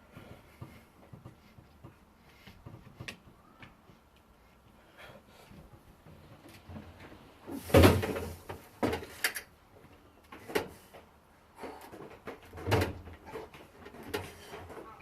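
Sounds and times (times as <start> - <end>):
knocks and clunks: 5.7 - 9.2.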